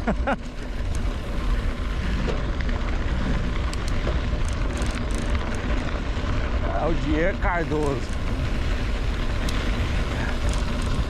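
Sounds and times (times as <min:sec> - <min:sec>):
faint ticks: 0:09.4 - 0:11.0.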